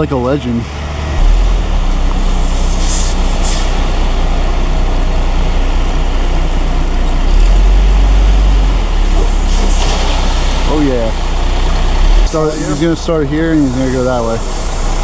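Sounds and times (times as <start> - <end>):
diesel engine running: 0.0 - 15.0
air hisses: 2.1 - 3.9, 9.1 - 10.7, 12.3 - 15.0.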